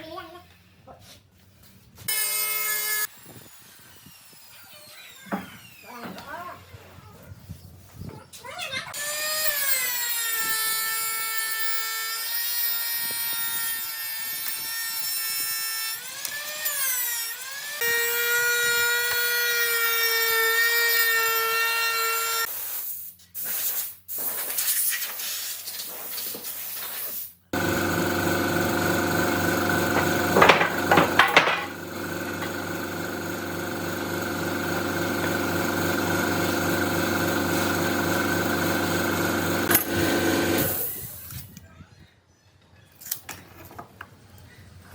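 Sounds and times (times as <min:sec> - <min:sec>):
high power tool motor whine: 0:09.0 - 0:22.5, 0:27.6 - 0:41.1
lower-pitched machine running: 0:27.6 - 0:40.8
sharp knocks: 0:29.9 - 0:31.8.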